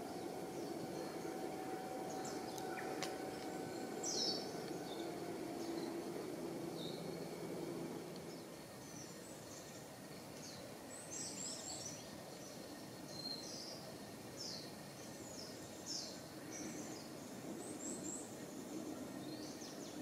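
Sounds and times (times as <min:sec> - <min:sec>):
faint low hum: 0:00.0 - 0:20.0
outdoor background hiss: 0:00.0 - 0:20.0
small birds chirping: 0:00.0 - 0:20.0.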